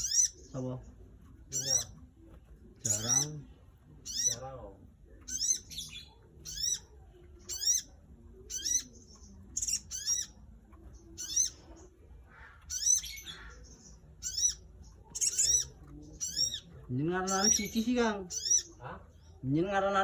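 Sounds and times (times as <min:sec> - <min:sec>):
small bird high-pitched call: 0:00.0 - 0:00.5, 0:01.5 - 0:01.9, 0:04.0 - 0:04.4, 0:05.3 - 0:07.9, 0:08.5 - 0:10.4, 0:11.2 - 0:11.6, 0:12.3 - 0:16.7, 0:17.3 - 0:18.8.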